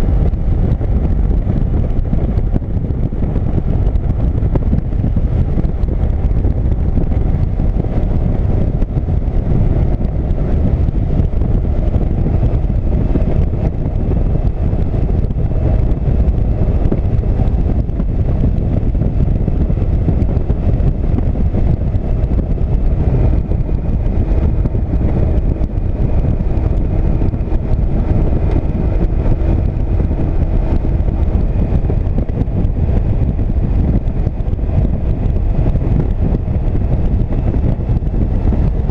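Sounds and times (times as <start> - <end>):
motorcycle engine running: 0.0 - 38.9
wind on microphone: 0.0 - 38.9.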